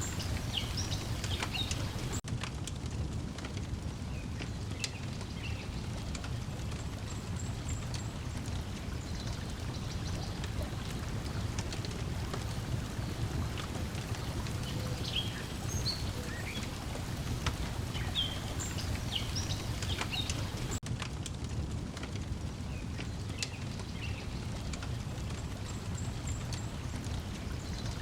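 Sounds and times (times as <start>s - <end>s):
birds chirping: 0.0s - 2.2s, 7.0s - 20.8s
water lapping: 0.0s - 2.2s, 6.3s - 20.8s
wood fire crackling: 0.0s - 28.0s.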